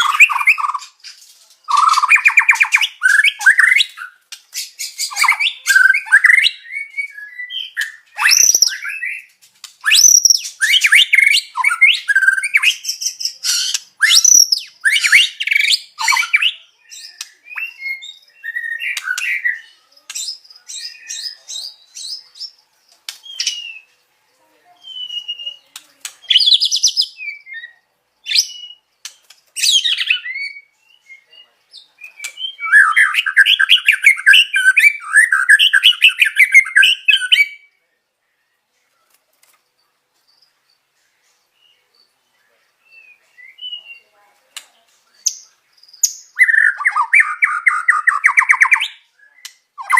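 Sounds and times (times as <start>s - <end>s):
songbird whistling and chirping: 0.0s - 24.0s, 24.8s - 37.8s, 40.4s - 44.2s, 45.1s - 49.9s
bird chattering: 1.7s - 4.2s.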